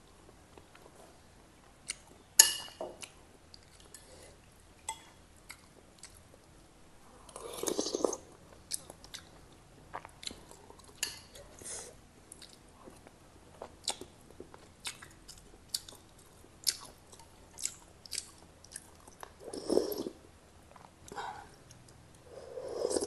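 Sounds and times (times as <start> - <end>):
chewing and mouth clicks: 12.3 - 20.1.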